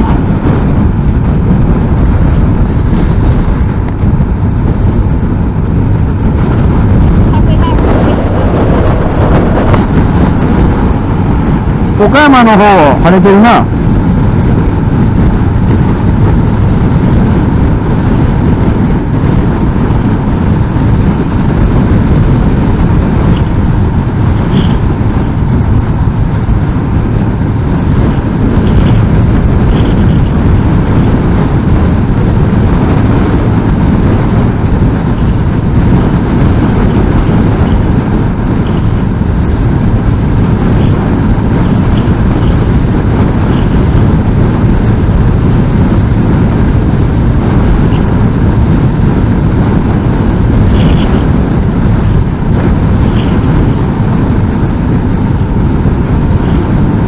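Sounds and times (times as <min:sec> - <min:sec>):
motorcycle engine: 0:00.0 - 0:57.0
road noise: 0:00.0 - 0:57.0
wind buffeting microphone: 0:00.0 - 0:57.0.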